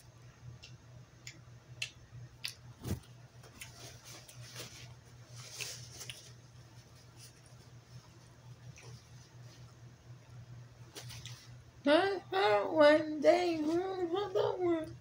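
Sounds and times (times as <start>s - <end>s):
low steady hum: 0.0s - 15.0s
paper napkin crumpling: 2.8s - 9.7s.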